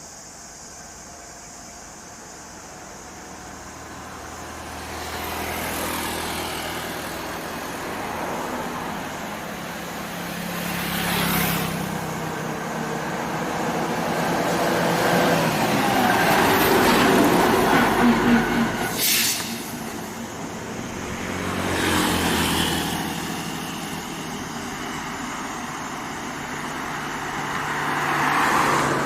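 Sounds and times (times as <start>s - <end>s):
short hiss: 18.9s - 20.0s.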